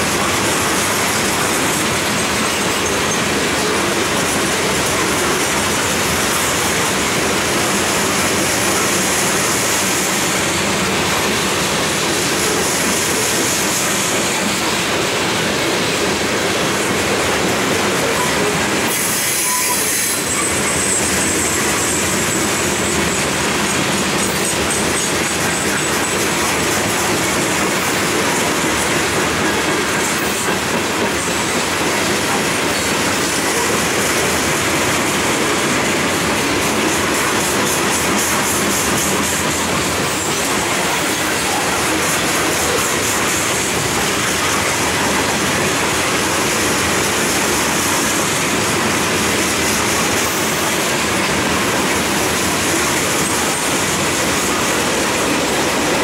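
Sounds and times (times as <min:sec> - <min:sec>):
clickety-clack over rail joints: 0:00.0 - 0:56.0
freight train wheels rumbling: 0:00.0 - 0:56.0
high wheel squeal: 0:18.0 - 0:23.3.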